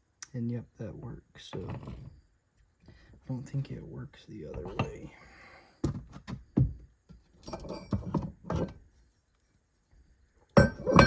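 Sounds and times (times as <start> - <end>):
metal parts knocking and clinking: 7.4 - 8.8, 10.6 - 11.0
metal clank: 10.6 - 11.0.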